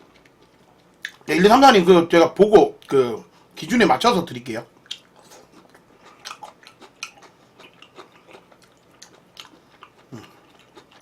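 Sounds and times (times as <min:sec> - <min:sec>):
person chewing with wet mouth clicks: 0:00.1 - 0:01.2, 0:04.8 - 0:11.0.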